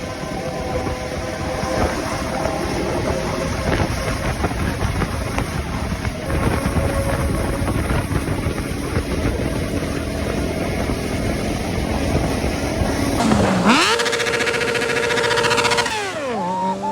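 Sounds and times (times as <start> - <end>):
wind rush: 0.0 - 16.9
motorcycle engine revving: 6.3 - 16.9.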